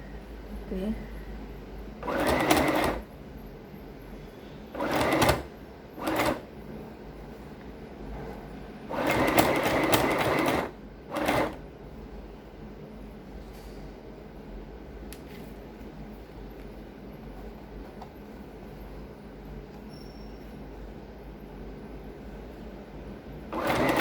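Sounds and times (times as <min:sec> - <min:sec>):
sewing machine stitching: 0:02.0 - 0:03.1, 0:04.7 - 0:06.5, 0:08.9 - 0:11.6, 0:23.5 - 0:24.0.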